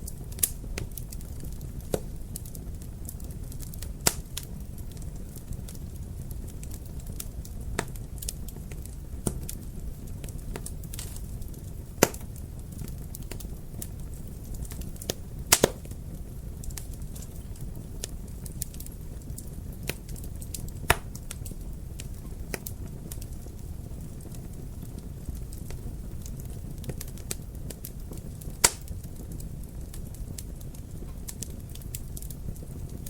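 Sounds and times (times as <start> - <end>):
loud sharp fire pops: 0.0 - 5.2, 6.7 - 16.0, 18.4 - 23.3, 26.3 - 29.4
fire crackling in fireplace: 0.0 - 33.0.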